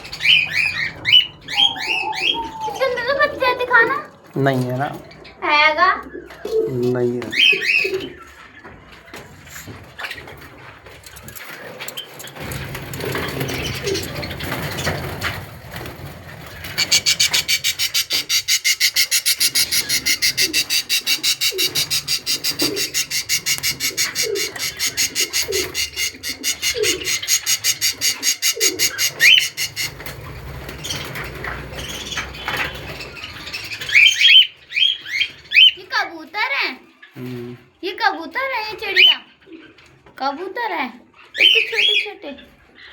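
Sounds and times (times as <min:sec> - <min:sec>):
high bird chirps: 0:00.0 - 0:04.0, 0:16.5 - 0:35.9
low falling bird calls: 0:00.0 - 0:10.4, 0:11.5 - 0:35.7
bird rasping pulse: 0:16.5 - 0:30.3.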